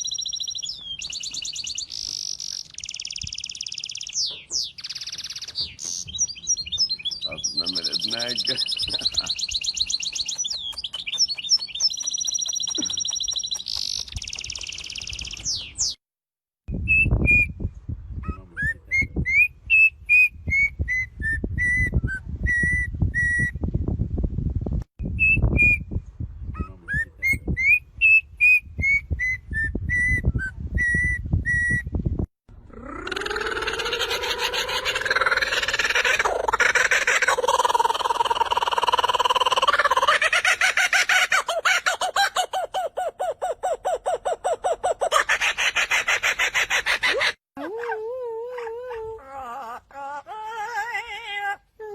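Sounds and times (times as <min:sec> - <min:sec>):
songbird trills and whistles: 0:00.0 - 0:16.0.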